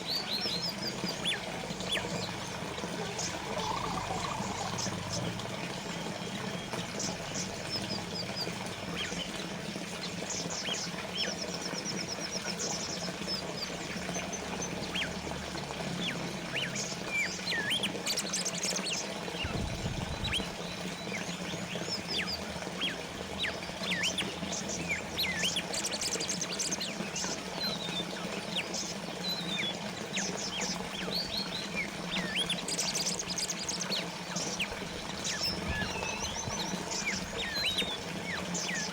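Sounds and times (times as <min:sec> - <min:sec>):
small birds chirping: 0:00.0 - 0:38.9
water fountain trickling: 0:00.0 - 0:38.9.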